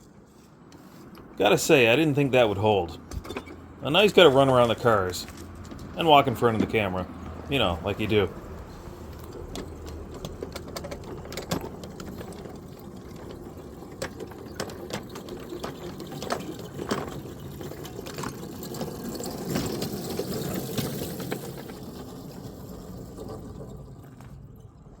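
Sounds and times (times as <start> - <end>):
irregular clicks and clanks: 3.0 - 22.4
small locomotive running on track: 3.8 - 24.9.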